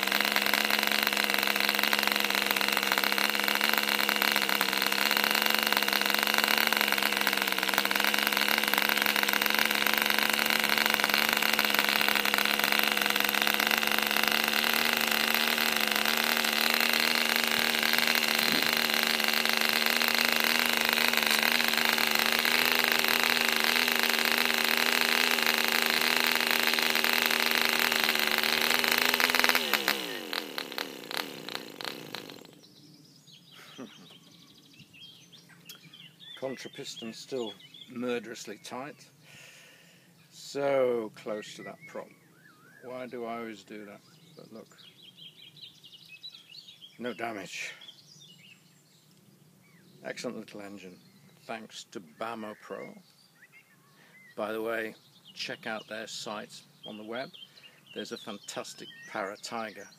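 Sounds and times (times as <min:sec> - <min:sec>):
model diesel engine running: 0:00.0 - 0:32.8.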